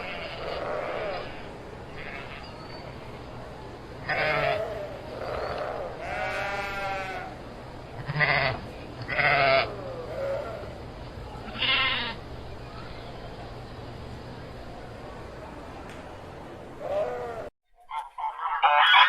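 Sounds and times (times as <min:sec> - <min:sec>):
sheep bleating: 0:00.0 - 0:02.5, 0:04.0 - 0:07.4, 0:08.0 - 0:10.8, 0:11.4 - 0:12.2, 0:16.8 - 0:17.5.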